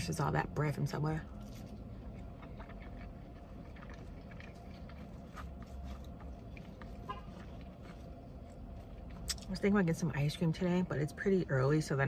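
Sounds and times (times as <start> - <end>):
steady low rumble: 0.0 - 12.0
soft chewing: 0.9 - 10.0.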